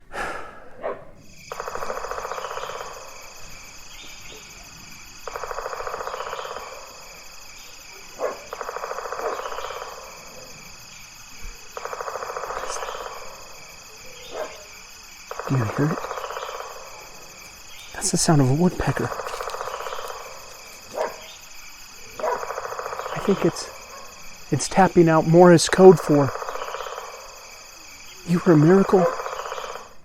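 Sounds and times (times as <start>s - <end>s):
woodpecker drumming on wood: 1.3s - 30.0s.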